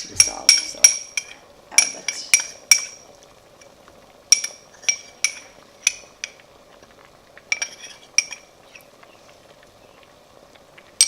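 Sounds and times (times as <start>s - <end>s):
spoon clinking against pan: 0.2s - 3.0s, 4.3s - 6.4s, 7.5s - 8.5s.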